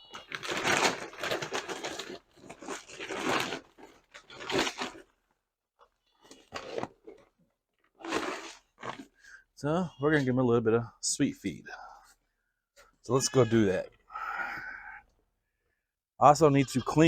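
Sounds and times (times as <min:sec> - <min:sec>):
rustling and crinkling: 0:00.0 - 0:09.2.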